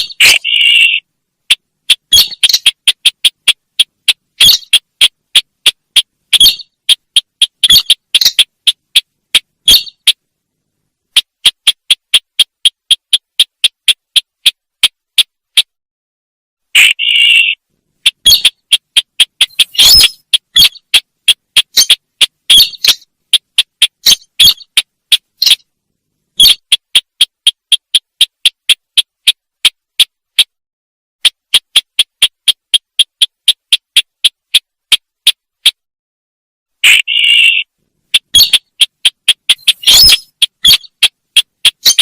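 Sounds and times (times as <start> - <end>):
bird chirping call: 0.0 - 10.2, 16.8 - 25.7, 26.4 - 26.7, 36.8 - 42.0.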